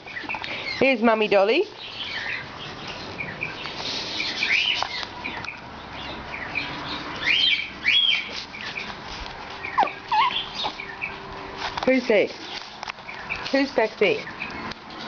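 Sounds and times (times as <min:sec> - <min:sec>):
birds chirping: 0:00.0 - 0:15.0
rising bird calls: 0:09.6 - 0:11.2.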